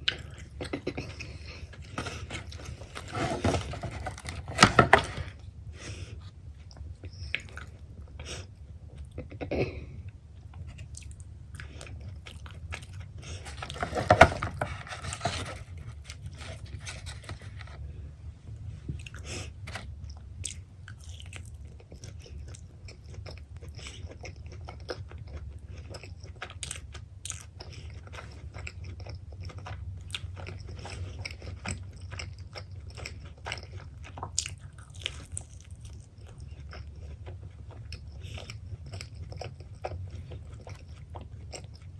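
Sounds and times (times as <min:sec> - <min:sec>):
chewing and biting pizza: 0:19.0 - 0:41.9.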